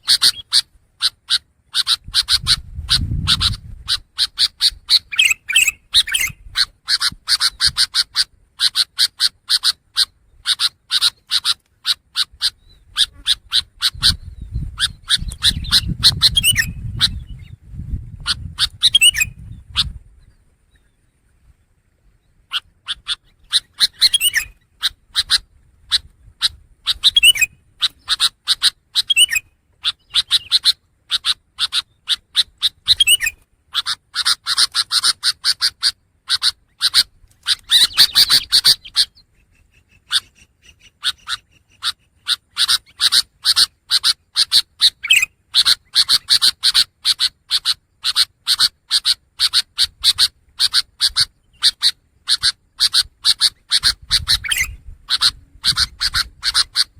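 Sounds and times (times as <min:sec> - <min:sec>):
shrike chattering song: 0:00.0 - 0:20.0, 0:22.4 - 0:56.9
bird sweeping whistles: 0:04.9 - 0:06.4, 0:14.0 - 0:17.3, 0:18.8 - 0:19.4, 0:23.8 - 0:24.6, 0:27.0 - 0:27.6, 0:32.9 - 0:33.4, 0:54.1 - 0:56.6.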